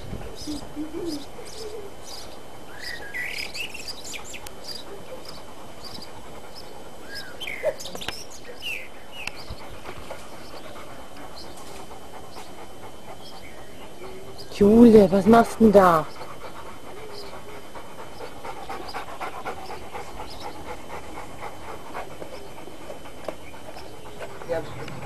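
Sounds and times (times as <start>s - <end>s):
garden birds chirping: 0.0s - 25.0s.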